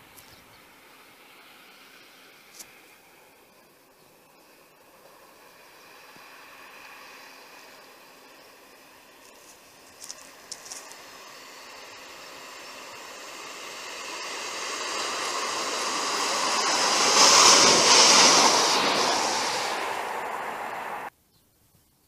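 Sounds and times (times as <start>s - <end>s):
train engine noise: 0.0s - 21.1s
train wheels rushing on rail: 10.4s - 21.1s.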